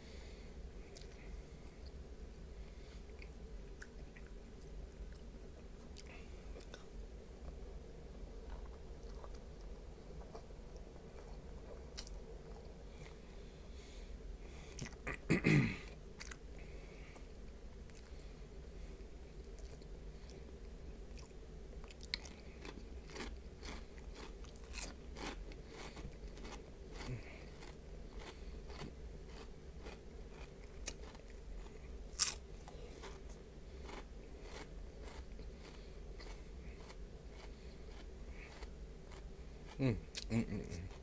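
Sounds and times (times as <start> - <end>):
person crunching snacks: 21.9 - 41.0.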